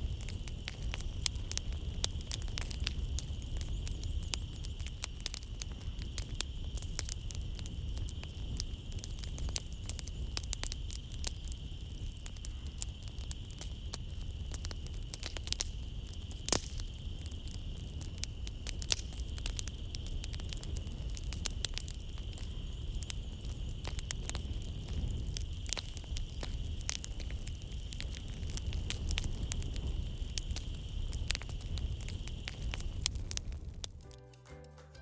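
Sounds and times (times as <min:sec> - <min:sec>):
night insects droning: 0:00.0 - 0:34.0
wood fire crackling: 0:00.0 - 0:34.8.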